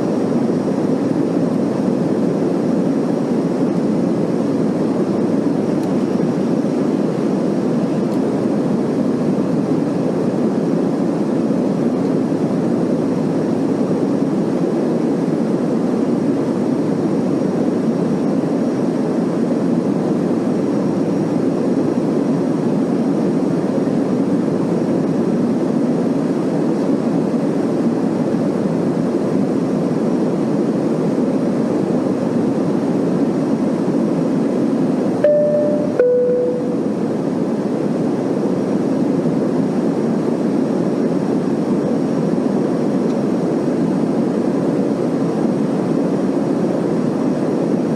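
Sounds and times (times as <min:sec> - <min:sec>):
airliner cabin engine rush: 0:00.0 - 0:47.9
brief tone: 0:35.2 - 0:37.0.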